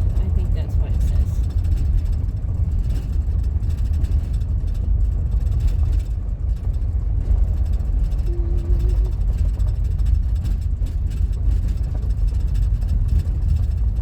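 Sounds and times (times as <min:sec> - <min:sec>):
engine and tyres rumbling: 0:00.0 - 0:14.0
short faint tone: 0:08.2 - 0:09.2.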